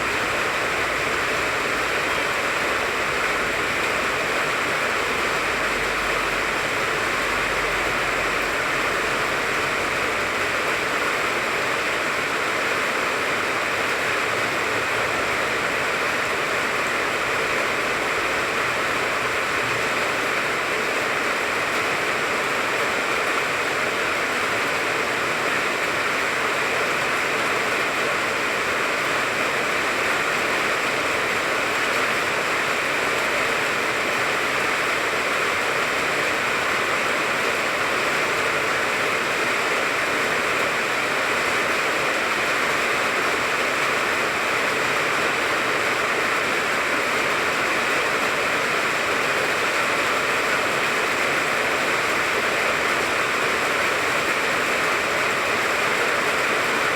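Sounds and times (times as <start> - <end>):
steady rain hiss: 0.0 - 56.9.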